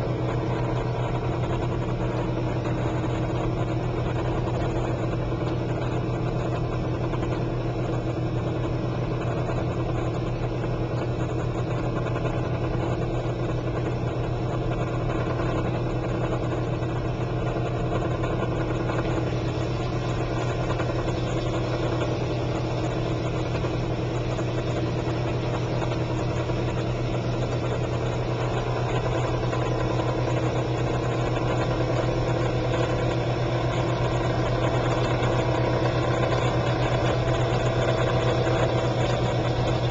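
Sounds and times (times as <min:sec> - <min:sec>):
dishwasher motor hum: 0:00.0 - 0:39.9
water churning and spraying: 0:18.9 - 0:39.9.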